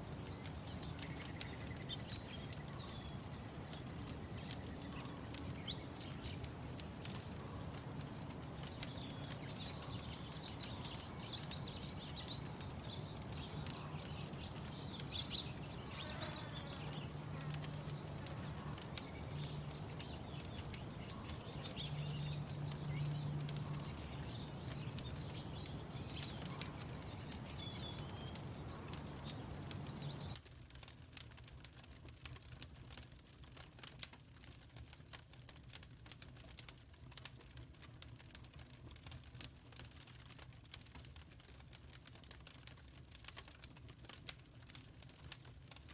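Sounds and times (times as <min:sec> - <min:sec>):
birds chirping: 0:00.0 - 0:30.4
wood fire crackling: 0:00.0 - 0:45.9.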